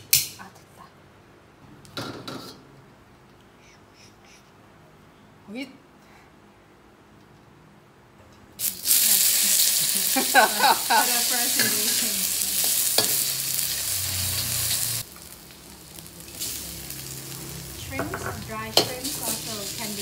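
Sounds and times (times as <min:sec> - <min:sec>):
food sizzling in hot oil: 0:08.6 - 0:20.0
metal ladle scraping wok: 0:11.5 - 0:15.0.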